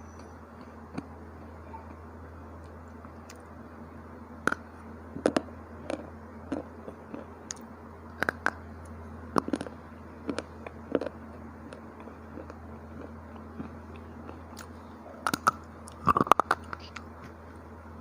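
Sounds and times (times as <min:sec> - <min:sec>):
steady low hum: 0:00.0 - 0:18.0
crunching chips: 0:09.4 - 0:17.1.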